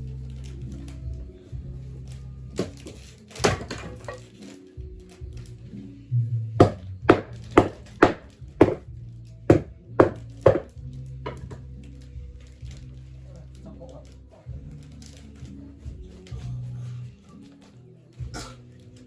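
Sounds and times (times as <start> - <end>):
background music: 0.0 - 19.0
sharp knocks: 9.5 - 10.7.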